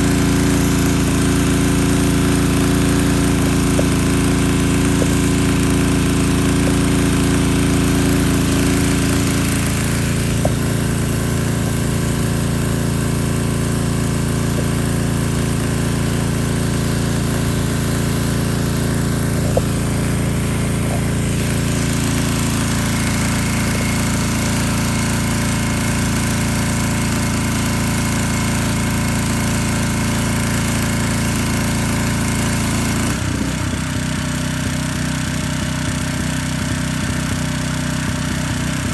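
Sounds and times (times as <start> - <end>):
water jet hissing: 0.0 - 25.6
pressure washer engine drone: 0.0 - 38.9.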